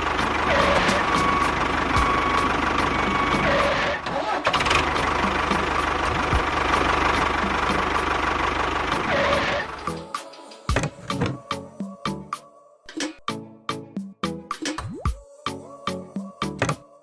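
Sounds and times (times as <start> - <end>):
engine chugging: 0.0 - 11.4.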